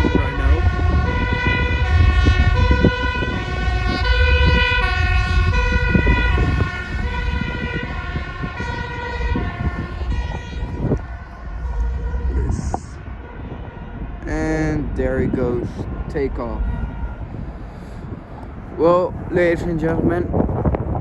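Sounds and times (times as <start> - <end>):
two-tone emergency siren: 0.0 - 19.2, 20.3 - 21.0
low rumble: 0.0 - 21.0.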